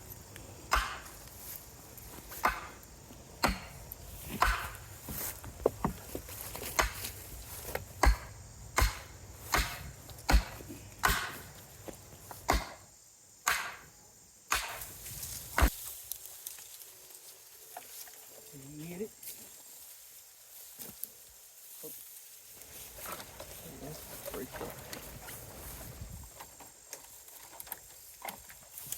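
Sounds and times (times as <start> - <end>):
hammer blows on wooden boards: 0.7 - 1.2, 2.3 - 2.8, 3.4 - 7.2, 8.0 - 13.9, 14.5 - 14.9.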